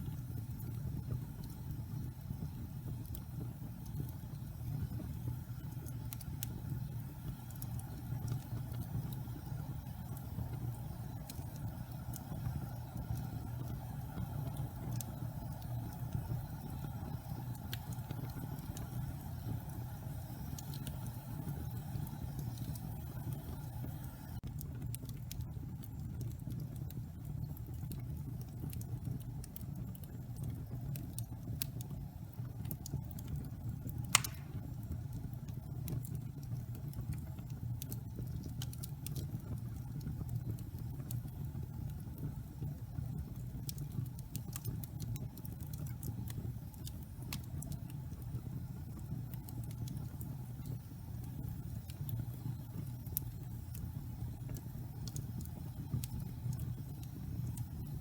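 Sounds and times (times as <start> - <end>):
burning logs crackling: 0.0 - 58.0
low fire rumble: 0.0 - 58.0
loud fire pop: 34.2 - 34.7.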